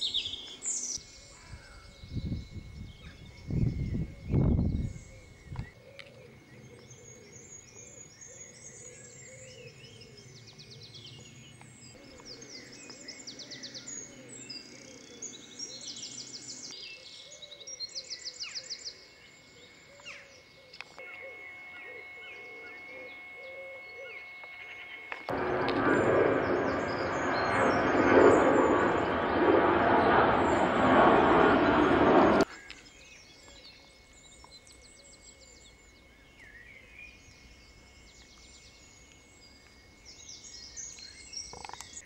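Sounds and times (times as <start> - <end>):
songbirds trilling and chirping: 0.0 - 30.8, 32.5 - 42.0.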